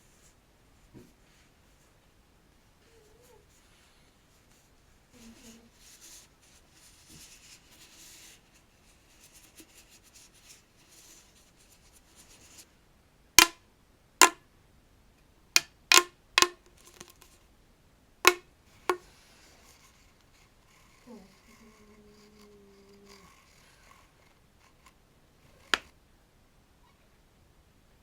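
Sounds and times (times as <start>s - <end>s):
faint scratching: 2.8s - 12.7s, 18.7s - 26.0s
sharp loud taps: 13.4s - 13.6s, 18.3s - 19.0s.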